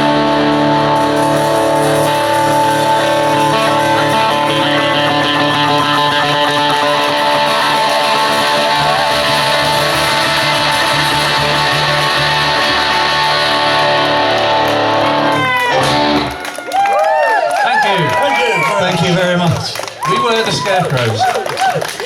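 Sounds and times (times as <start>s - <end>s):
electric guitar lines: 0.0s - 16.6s
bass: 0.0s - 16.9s.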